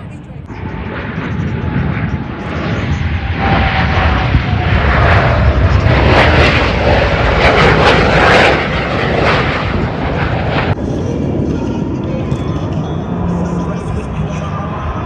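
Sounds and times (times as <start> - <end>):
faint whine falling in pitch: 0.0 - 6.0
jets flying past: 0.1 - 15.0.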